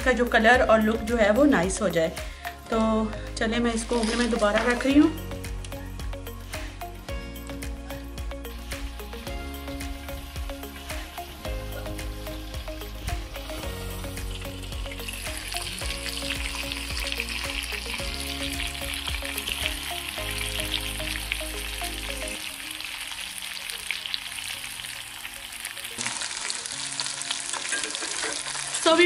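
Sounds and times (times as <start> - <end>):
soft background music: 0.0 - 29.0
chicken sizzling in hot fat: 3.7 - 5.1, 7.9 - 29.0.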